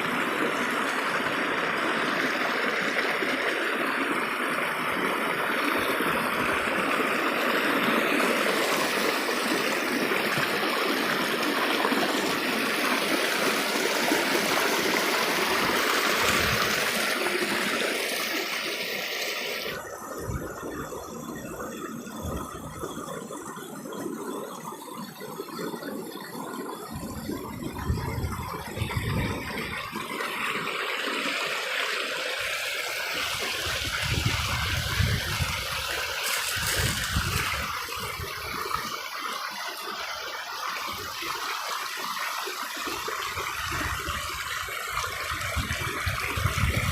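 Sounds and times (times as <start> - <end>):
stream water rushing: 0.0 - 24.4, 25.0 - 46.9.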